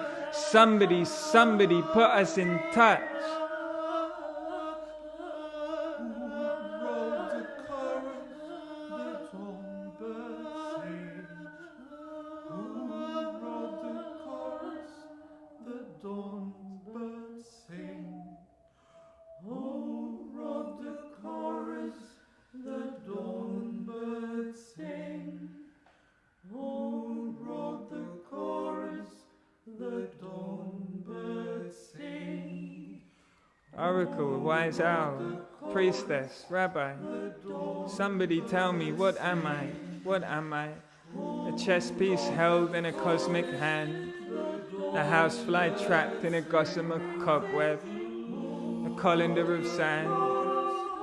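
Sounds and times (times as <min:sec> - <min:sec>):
a cappella choir singing: 0:00.0 - 0:51.0.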